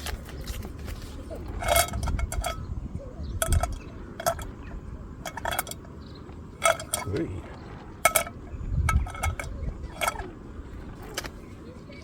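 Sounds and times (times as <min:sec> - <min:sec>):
utensils clinking on cookware: 0:01.5 - 0:02.7, 0:03.3 - 0:06.0, 0:06.6 - 0:07.2, 0:08.0 - 0:10.4.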